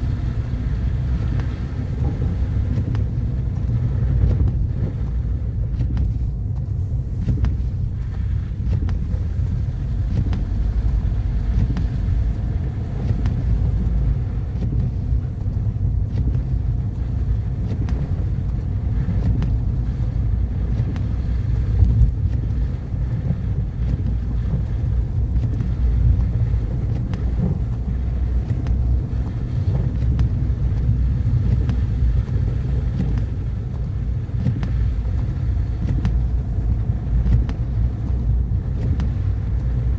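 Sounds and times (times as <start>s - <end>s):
car engine rumble: 0.0s - 39.9s
tyres on road: 7.5s - 39.9s.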